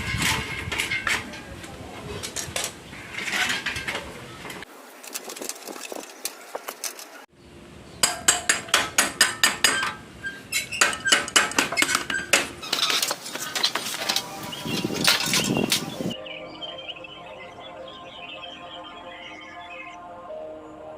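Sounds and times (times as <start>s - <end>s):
hammer striking metal: 8.0s - 10.0s, 10.8s - 16.2s.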